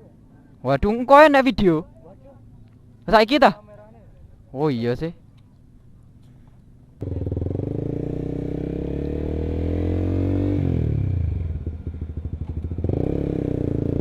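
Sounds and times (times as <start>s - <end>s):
motorcycle engine accelerating: 7.0s - 14.0s.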